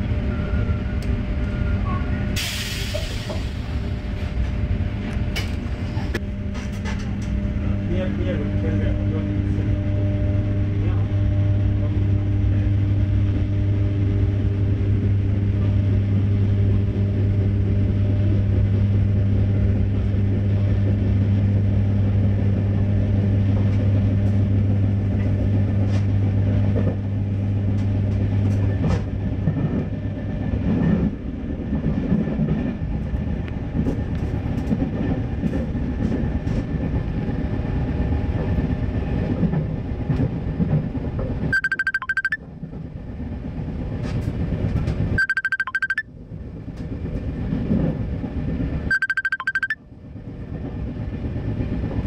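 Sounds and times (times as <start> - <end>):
train running rumble: 0.0 - 52.0
short high-pitched tones: 41.5 - 42.4, 45.2 - 46.0, 48.9 - 49.8.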